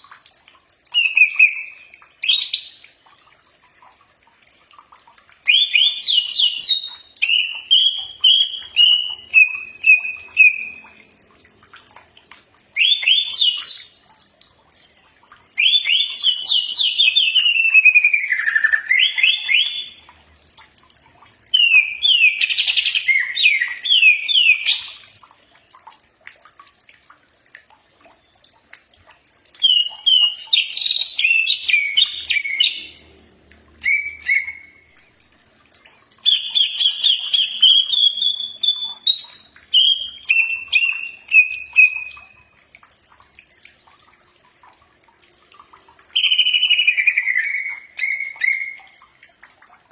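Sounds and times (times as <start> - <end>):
bird singing chirps and trills: 1.0 - 2.9, 5.5 - 10.9, 15.6 - 20.0, 21.6 - 25.2, 29.6 - 33.0, 33.8 - 35.0, 36.3 - 42.4, 46.2 - 48.9.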